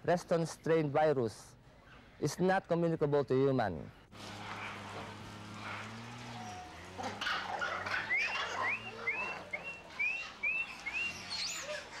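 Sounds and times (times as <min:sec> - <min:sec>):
bird whistling notes: 0:07.9 - 0:11.8.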